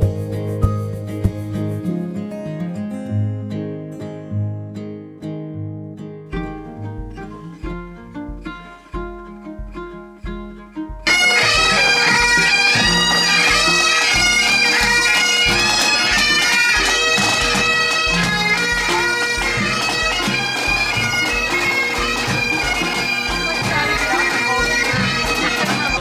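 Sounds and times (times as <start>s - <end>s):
drum beats: 0.0s - 2.1s, 6.3s - 26.0s
bagpipes playing: 6.4s - 26.0s.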